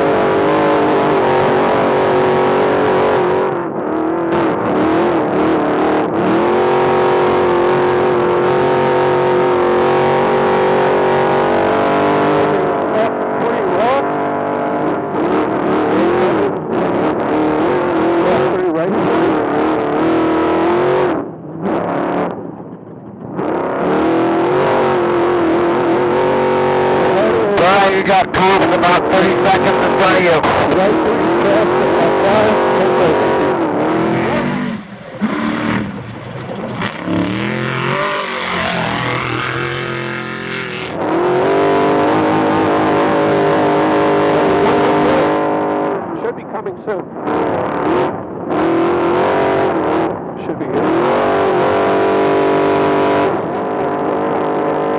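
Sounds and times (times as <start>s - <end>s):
truck engine revving hard: 0.0s - 12.8s, 19.8s - 45.8s
rushing noise: 32.6s - 41.0s.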